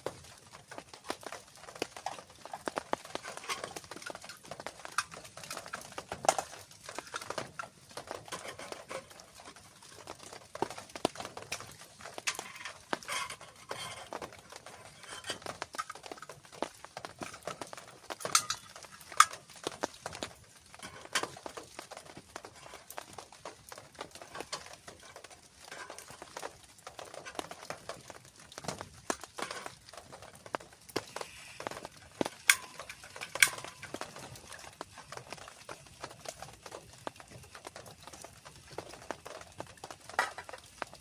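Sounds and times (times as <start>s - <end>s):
rain pattering and dripping: 0.0s - 41.0s
sharp water drops: 27.3s - 35.6s
faint hiss: 31.0s - 33.4s.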